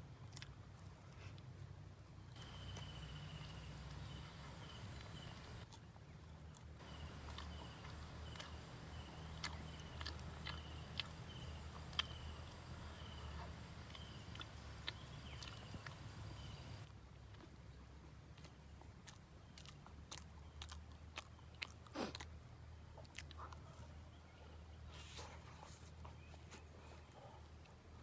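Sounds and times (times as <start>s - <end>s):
high-pitched insect chorus: 2.4s - 5.6s, 6.8s - 16.8s.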